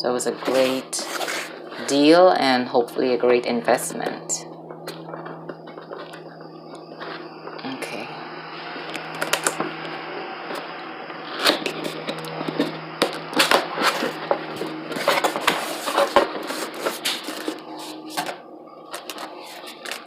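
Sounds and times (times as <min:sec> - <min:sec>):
low steady hum: 0:00.0 - 0:20.0
cardboard packaging rustling: 0:11.4 - 0:20.0.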